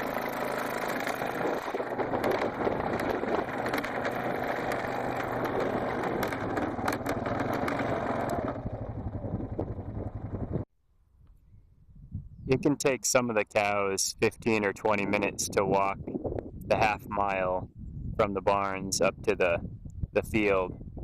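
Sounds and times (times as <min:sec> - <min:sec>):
rattling and clicking: 0:00.0 - 0:10.3
vehicle engine running: 0:00.0 - 0:10.7.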